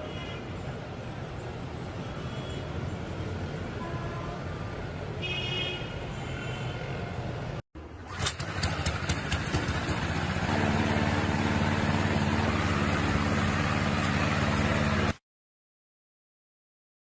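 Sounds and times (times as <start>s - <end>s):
engine running steadily: 7.8s - 15.2s.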